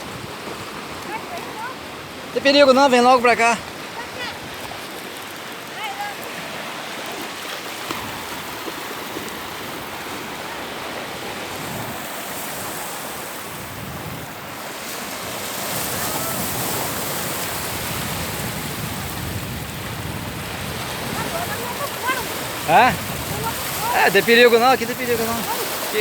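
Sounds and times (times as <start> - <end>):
sea surf: 0.0 - 26.0
wind: 0.0 - 26.0.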